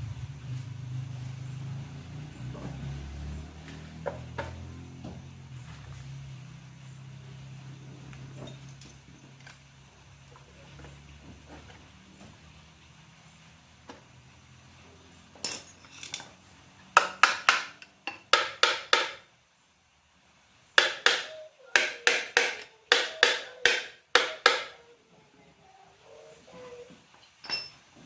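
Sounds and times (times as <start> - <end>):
hammer striking metal: 17.0 - 19.2, 20.8 - 24.8.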